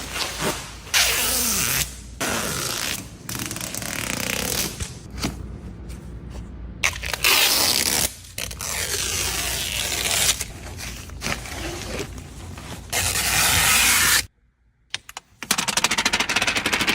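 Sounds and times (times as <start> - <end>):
plastic wrapping tearing and rustling: 6.8 - 14.3.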